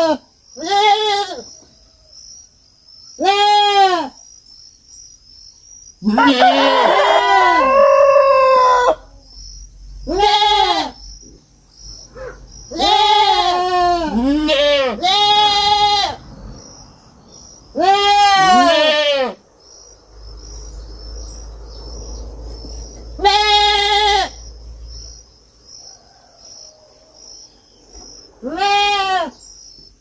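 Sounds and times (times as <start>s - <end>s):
young goats bleating: 0.0s - 1.5s, 3.2s - 4.2s, 6.0s - 9.1s, 10.0s - 11.0s, 12.7s - 16.2s, 17.7s - 19.4s, 23.1s - 24.4s, 28.4s - 29.4s.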